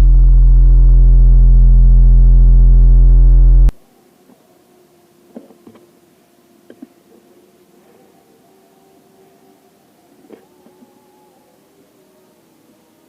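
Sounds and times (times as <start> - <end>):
loud electronic low hum: 0.0 - 3.8.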